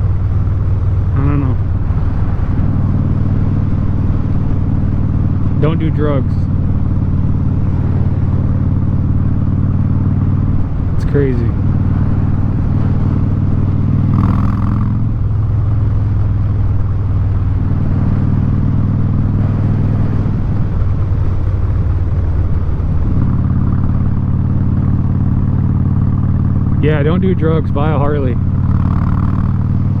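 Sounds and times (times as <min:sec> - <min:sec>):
motorcycle engine while riding: 0:00.0 - 0:30.0.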